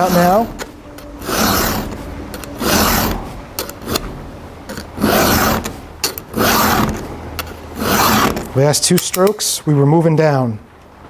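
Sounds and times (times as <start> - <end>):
file rasping on metal: 0.0 - 8.5.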